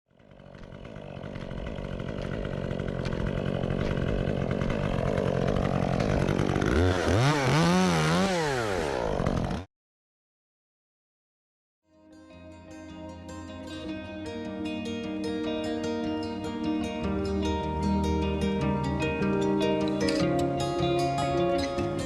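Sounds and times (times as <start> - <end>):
chainsaw engine revving: 0.1 - 9.7.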